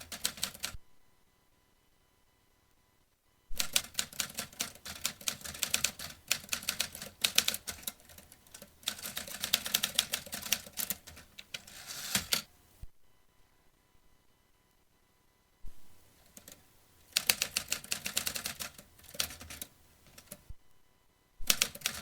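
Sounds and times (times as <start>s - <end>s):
typewriter key strikes: 3.6s - 12.5s, 17.2s - 20.4s, 21.5s - 22.0s.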